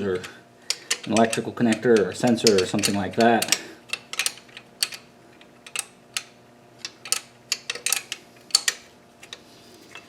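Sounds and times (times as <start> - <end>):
metal tools clinking: 0.0 - 5.0, 6.8 - 8.8
faint steady hum: 0.0 - 10.0.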